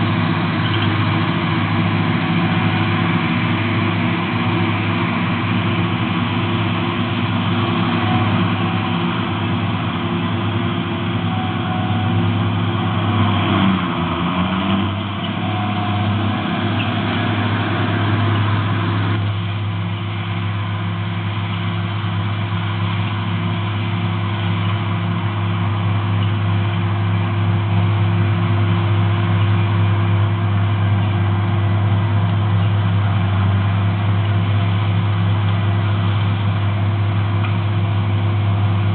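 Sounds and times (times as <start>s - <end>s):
heavy machinery engine running: 0.0s - 38.9s.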